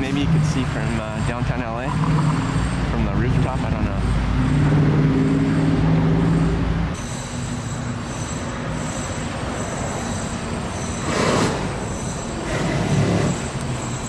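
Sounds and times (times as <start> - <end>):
heavy vehicle engine hum: 0.0 - 14.0
passing vehicle rush: 0.0 - 14.0
steady road noise: 0.0 - 14.0
faint high-pitched squeal: 6.3 - 12.5.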